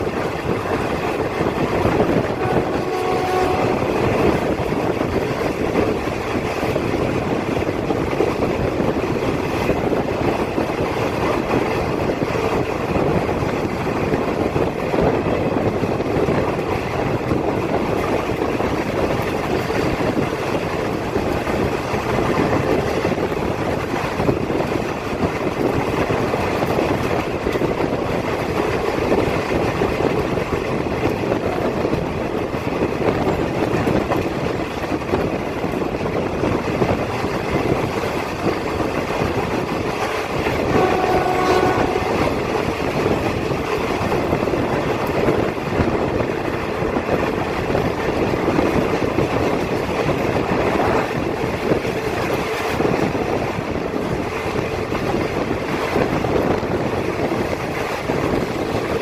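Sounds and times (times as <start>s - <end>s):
train rumbling and clattering: 0.0s - 59.0s
train horn blast: 1.7s - 4.6s, 40.6s - 42.5s.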